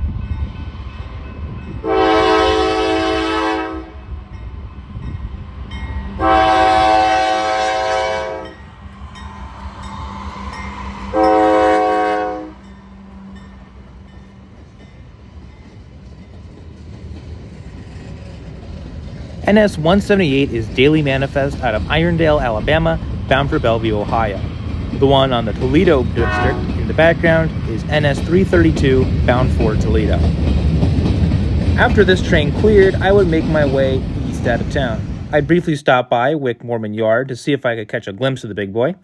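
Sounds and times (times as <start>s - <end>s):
moving train rumble: 0.0s - 35.9s
locomotive air horn blasts: 1.8s - 4.1s, 6.2s - 8.6s, 11.1s - 13.4s, 26.2s - 26.9s.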